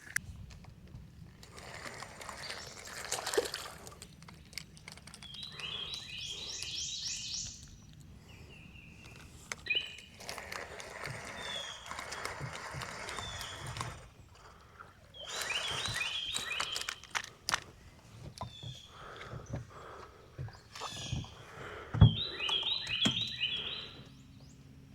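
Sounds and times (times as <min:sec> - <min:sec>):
rustling: 0:09.0 - 0:21.9
songbird singing high notes: 0:22.1 - 0:24.3.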